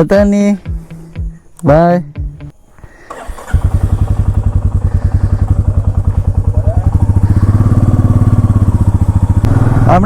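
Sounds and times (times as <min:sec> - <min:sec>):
motorcycle engine thumping: 0:03.1 - 0:10.0.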